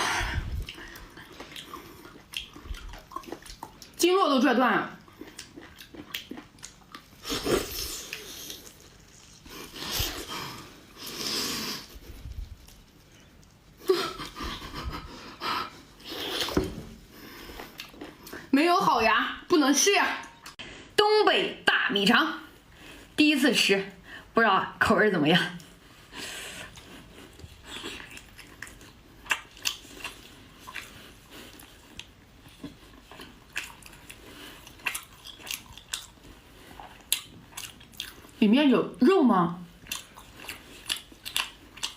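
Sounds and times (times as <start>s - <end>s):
person chewing tough food: 0.0s - 4.0s, 5.0s - 14.6s, 15.7s - 18.5s, 25.6s - 38.4s, 39.7s - 41.9s
person biting and chewing: 39.8s - 41.9s.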